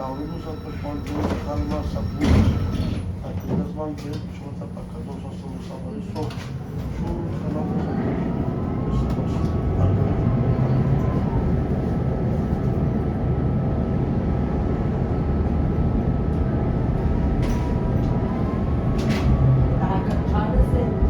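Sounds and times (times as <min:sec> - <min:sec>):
tram wheels rumbling on track: 0:00.0 - 0:21.0.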